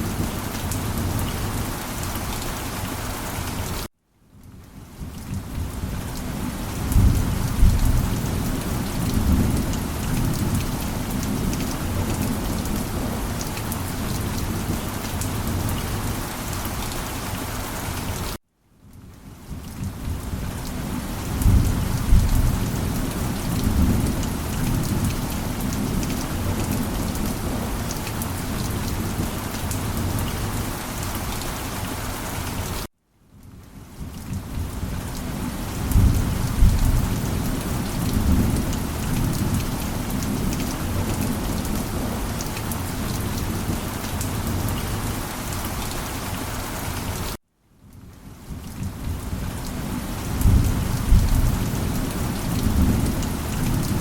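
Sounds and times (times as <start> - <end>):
steady rain: 0.0 - 54.0
low rolling thunder: 6.8 - 13.4, 20.9 - 27.8, 35.8 - 42.2, 50.3 - 54.0.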